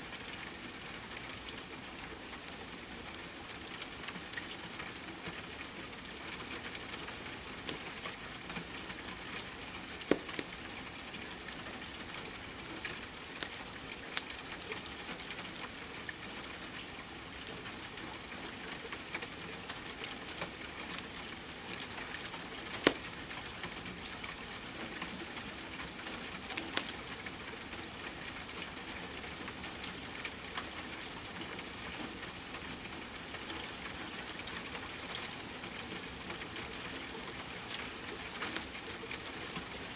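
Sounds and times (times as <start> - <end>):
rain hiss: 0.0 - 39.9
fireplace fire crackling: 3.1 - 16.2, 18.5 - 31.2.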